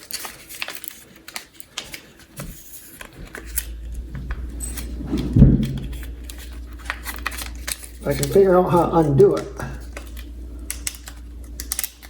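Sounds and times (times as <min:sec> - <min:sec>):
low rumble: 0:03.2 - 0:08.0.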